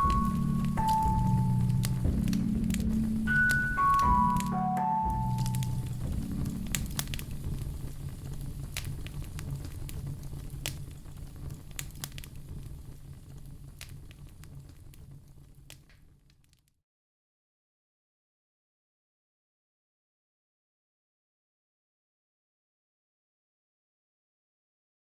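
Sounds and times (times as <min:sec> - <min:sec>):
marimba-like notes: 0:00.0 - 0:07.0
low steady rumble: 0:00.0 - 0:15.8
campfire crackling and popping: 0:00.0 - 0:16.6.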